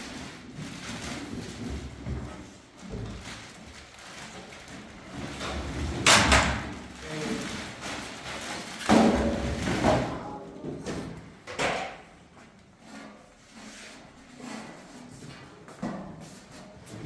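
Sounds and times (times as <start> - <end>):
household knocks and bangs: 8.8 - 10.1.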